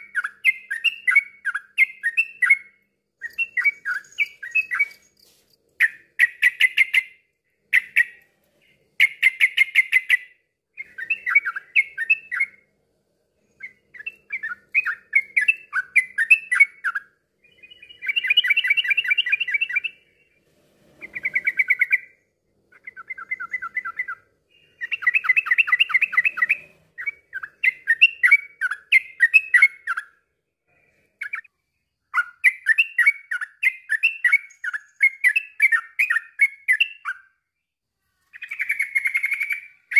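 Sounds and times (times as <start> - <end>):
bulbul song chattering: 0.0 - 5.2.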